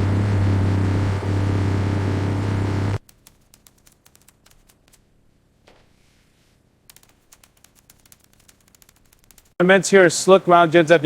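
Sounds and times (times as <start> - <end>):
keyboard typing clicks: 3.0 - 5.0, 6.9 - 9.5.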